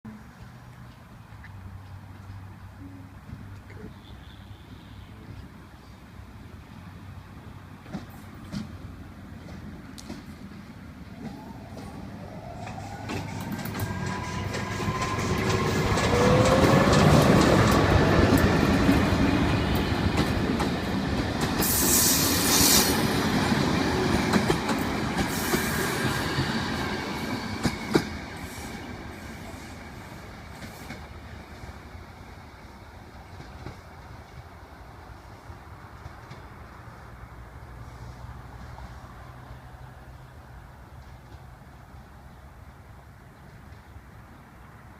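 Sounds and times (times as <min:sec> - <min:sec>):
train passing on rails: 0:04.7 - 0:44.9
wheels clicking over track: 0:11.2 - 0:21.9.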